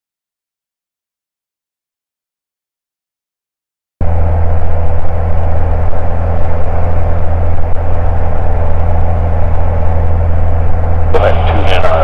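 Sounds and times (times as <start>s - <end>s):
propeller plane engine droning: 4.0s - 12.0s.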